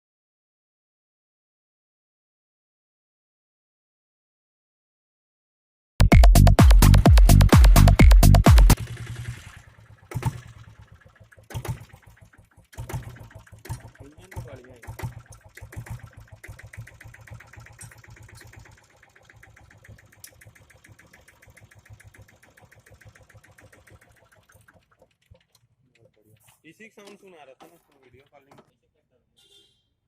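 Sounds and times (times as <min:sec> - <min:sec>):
engine knocks: 0:06.1 - 0:25.5
diesel engine idling: 0:08.8 - 0:24.2.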